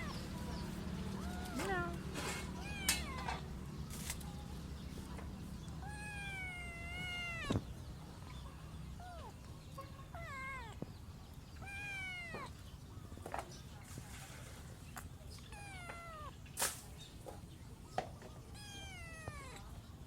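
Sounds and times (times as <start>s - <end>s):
kitten meowing: 1.1s - 2.0s, 2.6s - 3.4s, 5.8s - 7.7s, 10.0s - 10.8s, 11.6s - 12.6s, 15.4s - 16.4s, 18.5s - 19.7s.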